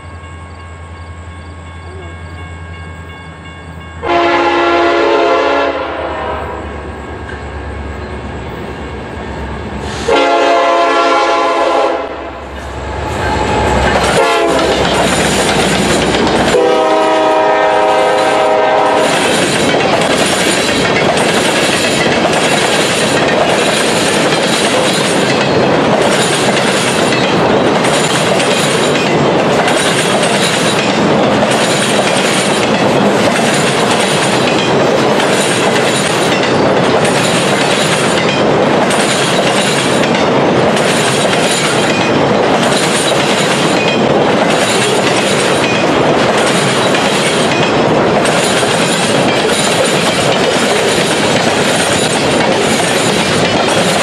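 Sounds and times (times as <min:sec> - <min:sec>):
locomotive horn blast: 0:04.0 - 0:06.8, 0:10.0 - 0:12.4, 0:13.0 - 0:14.9, 0:16.4 - 0:19.2
freight cars rumbling and clattering: 0:12.5 - 0:16.7, 0:19.0 - 0:54.0
wheel clack: 0:13.8 - 0:16.6.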